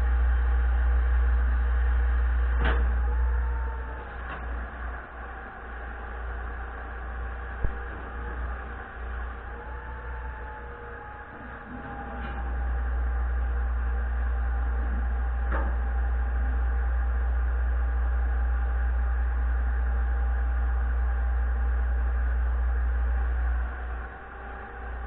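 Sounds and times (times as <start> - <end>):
pump machinery rumbling: 0.0 - 25.0.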